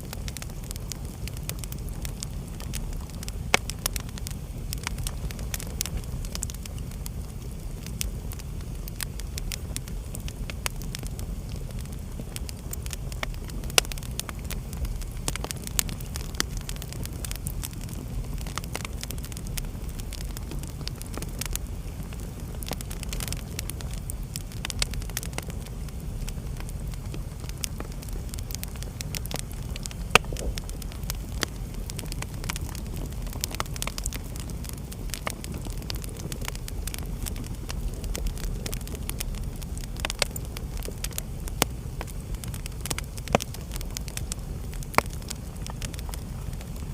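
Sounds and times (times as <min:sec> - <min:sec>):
fire crackling and popping: 0:00.0 - 0:46.9
fire rumbling: 0:00.0 - 0:46.9.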